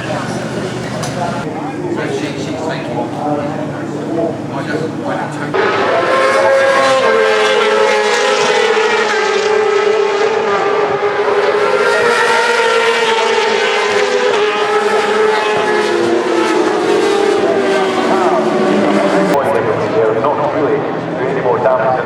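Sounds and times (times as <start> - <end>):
motorbike engines at high revs: 4.1 - 19.6.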